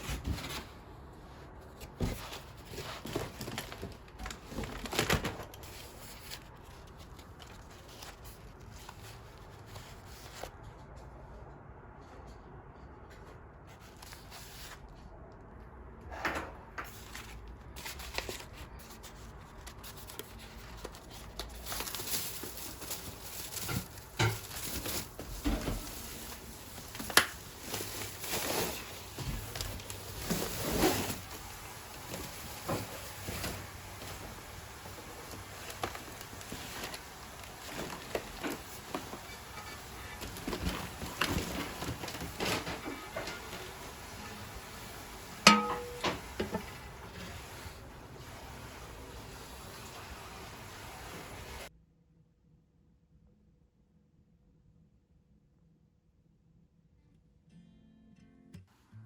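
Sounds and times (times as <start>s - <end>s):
objects being handled: 16.2s - 51.7s.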